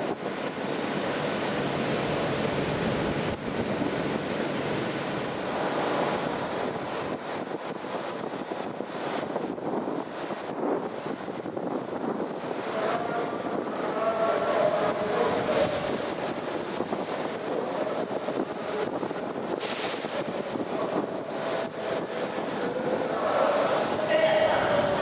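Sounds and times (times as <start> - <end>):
train rushing rumble: 12.3 - 25.0.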